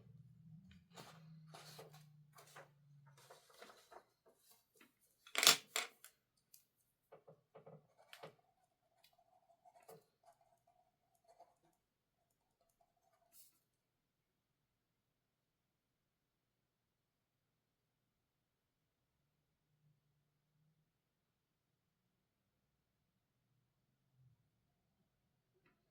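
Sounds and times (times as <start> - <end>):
object set down clacking: 5.3 - 6.1.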